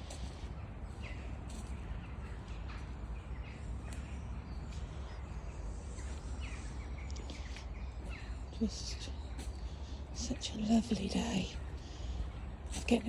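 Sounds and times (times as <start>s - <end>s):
birds calling: 0.0s - 13.0s
steady low rumble: 0.0s - 13.0s.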